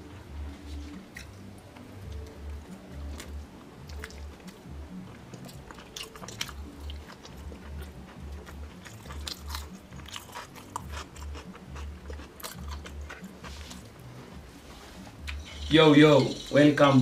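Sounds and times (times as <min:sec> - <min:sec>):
close-up crunching and chewing: 0:00.6 - 0:14.1.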